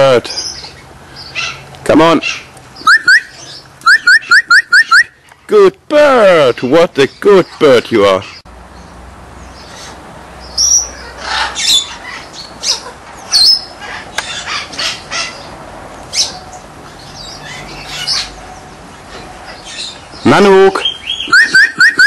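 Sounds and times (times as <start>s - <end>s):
bird squawks and chirps: 0.4s - 5.3s, 10.6s - 15.5s, 16.1s - 22.0s.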